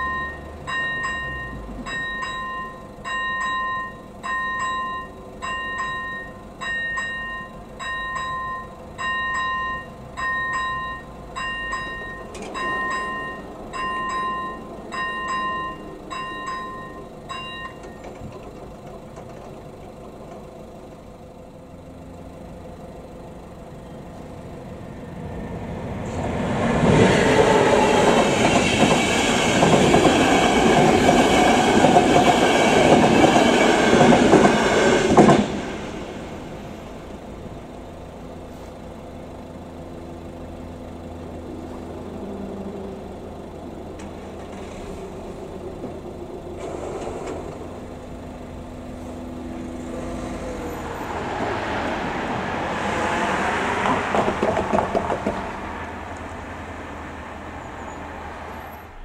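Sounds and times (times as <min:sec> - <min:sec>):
train wheels clattering over rails: 0:11.4 - 0:20.5, 0:25.9 - 0:36.9, 0:43.9 - 0:48.1, 0:53.0 - 0:56.0.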